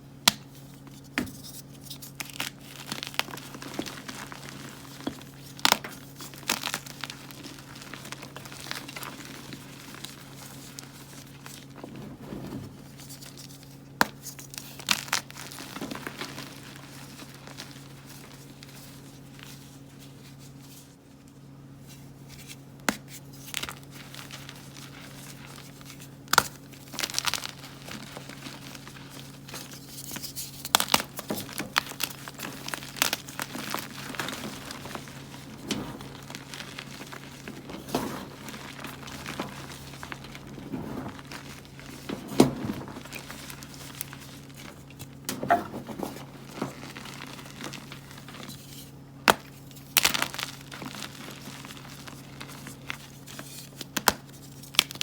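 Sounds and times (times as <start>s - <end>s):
chalk blocks crumbling by hand: 23.0s - 55.0s.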